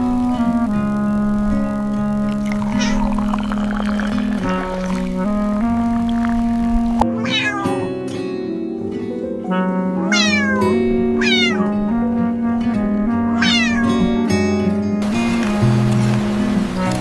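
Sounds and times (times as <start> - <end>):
gentle background music: 0.0 - 17.0
cat meowing: 2.8 - 3.0, 7.0 - 8.1, 10.1 - 11.8, 13.4 - 14.1.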